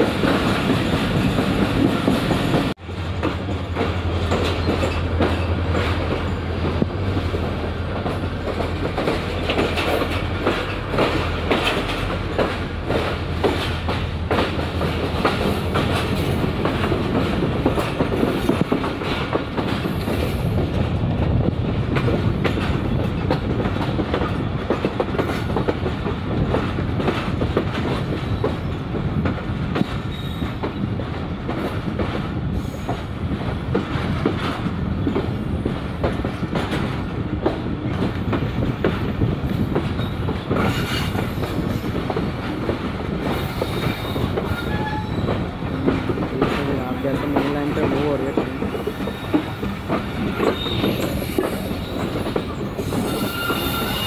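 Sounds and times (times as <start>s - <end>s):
train rolling on rails: 0.0s - 54.0s
wheels clacking over rail joints: 0.0s - 54.0s
faint high wheel squeals: 50.4s - 51.2s, 51.8s - 54.0s.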